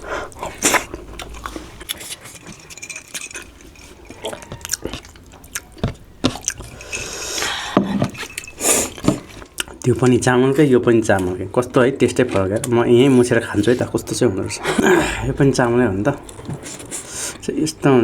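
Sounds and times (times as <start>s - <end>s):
chewing and mouth smacks: 0.3s - 7.5s, 8.1s - 10.2s.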